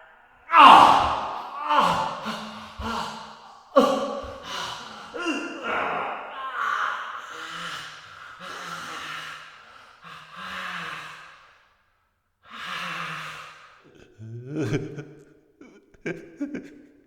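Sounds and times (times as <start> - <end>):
man sobbing: 0.5 - 6.9, 14.2 - 15.0.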